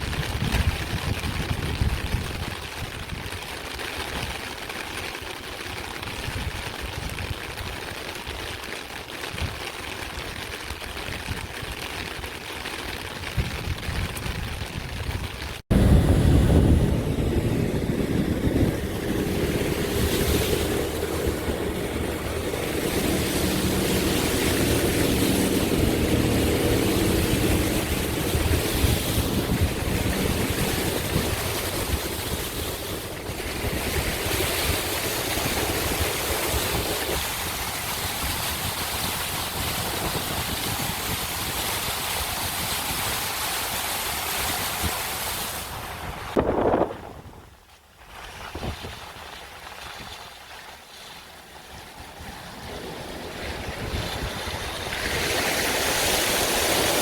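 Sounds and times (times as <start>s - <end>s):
heavy rain and wind: 0.0s - 57.0s
low engine hum: 15.7s - 37.1s.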